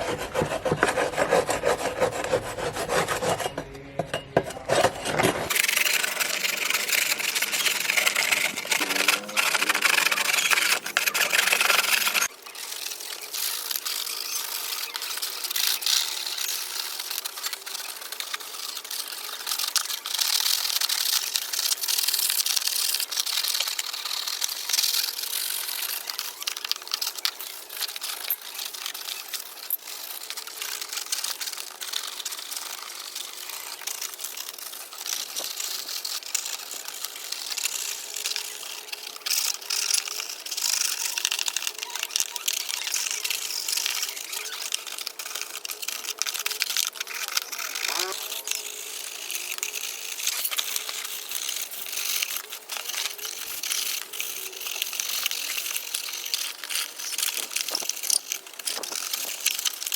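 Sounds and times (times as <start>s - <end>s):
hand sanding: 0.0s - 12.3s.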